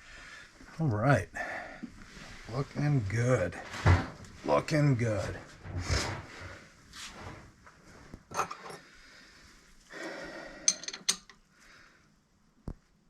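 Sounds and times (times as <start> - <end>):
metallic clicks and clinks: 10.6 - 11.4.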